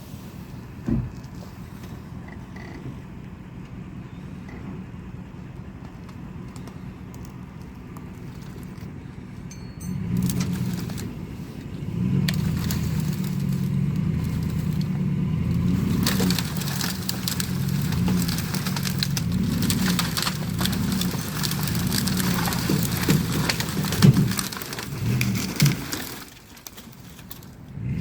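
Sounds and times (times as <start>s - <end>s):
engine running under load: 0.0s - 28.0s
sharp cracks and crunches: 5.8s - 9.1s, 10.1s - 28.0s.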